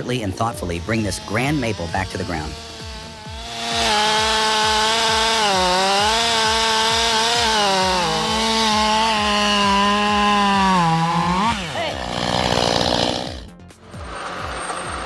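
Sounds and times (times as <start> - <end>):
chainsaw cutting wood: 0.6 - 14.7.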